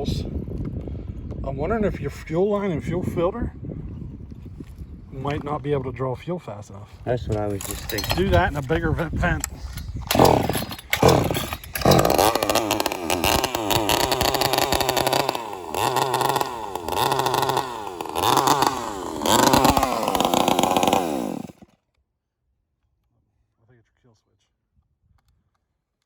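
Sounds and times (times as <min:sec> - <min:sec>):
chainsaw revving: 0:07.6 - 0:08.5, 0:10.0 - 0:21.8.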